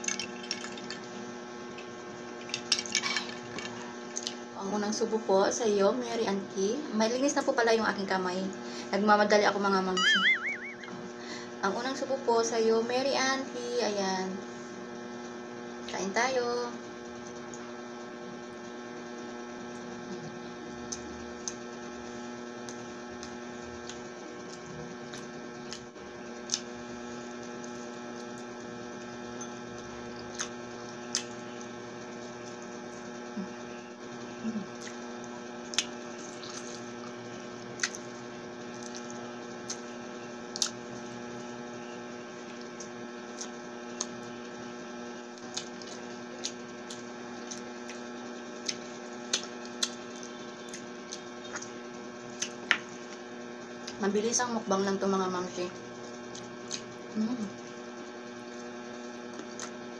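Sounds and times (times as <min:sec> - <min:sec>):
electrical hum: 0:00.0 - 0:59.9
mouth eating clicks and smacks: 0:22.7 - 0:26.7, 0:34.7 - 0:35.0, 0:37.8 - 0:38.1, 0:40.5 - 0:40.8, 0:45.4 - 0:48.0, 0:48.6 - 0:51.8, 0:56.3 - 0:57.0.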